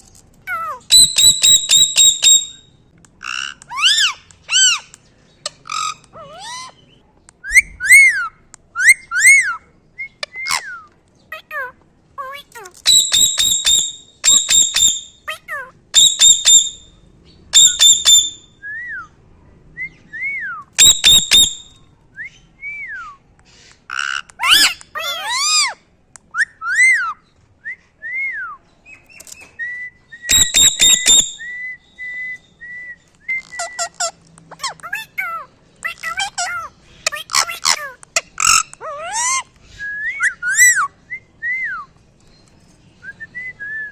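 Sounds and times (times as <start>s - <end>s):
parrot squawking: 0.5s - 2.5s, 3.2s - 4.9s, 5.6s - 6.8s, 11.3s - 16.8s, 23.9s - 25.8s, 30.3s - 31.4s, 33.6s - 39.5s
parrot whistled chirps: 0.7s - 2.7s, 7.4s - 10.9s, 12.8s - 15.3s, 15.9s - 16.9s, 17.5s - 19.0s, 20.0s - 23.2s, 29.6s - 36.6s, 38.4s - 41.8s.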